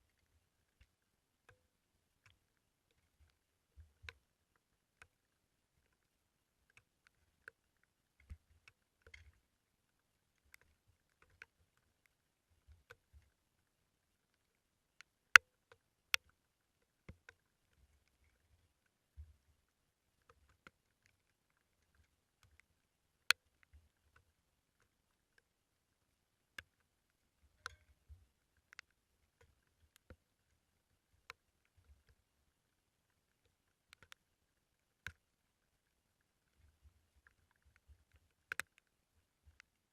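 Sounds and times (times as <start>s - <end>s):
faint sharp clicks: 0.0s - 39.9s
sharp taps and ticks: 33.4s - 34.2s, 37.2s - 39.8s.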